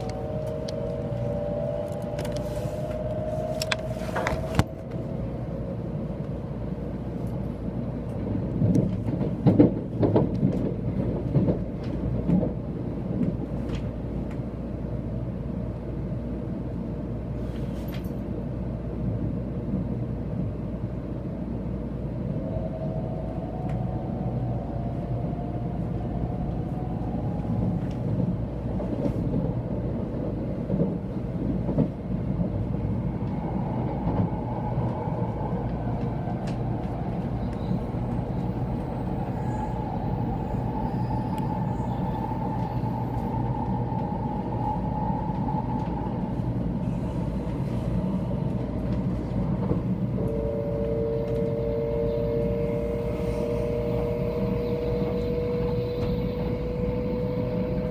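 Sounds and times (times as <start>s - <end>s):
rising whining tones: 0.0s - 6.1s, 50.1s - 57.9s
train interior rumble: 0.0s - 57.9s.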